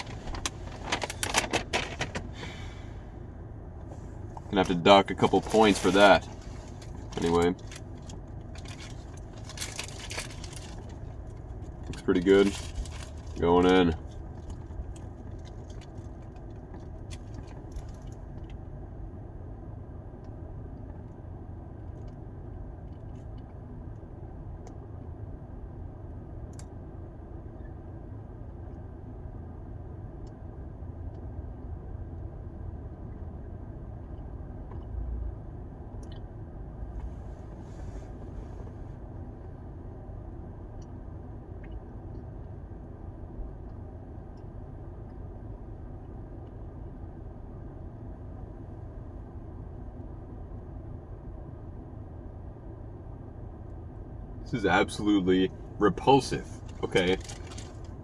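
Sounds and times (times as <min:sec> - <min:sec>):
light clicks and crinkles: 0:00.0 - 0:02.3, 0:03.9 - 0:18.6, 0:56.0 - 0:58.0
vehicle idling rumble: 0:00.0 - 0:58.0.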